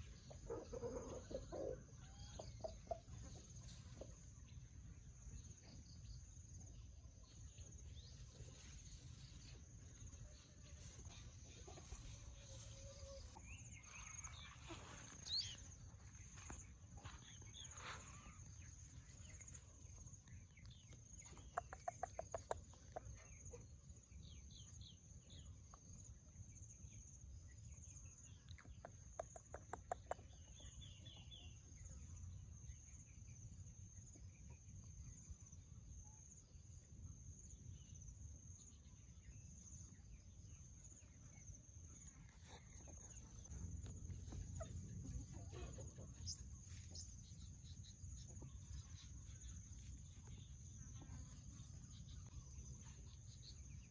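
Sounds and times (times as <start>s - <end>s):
hens clucking: 0.2s - 4.2s, 44.1s - 47.0s.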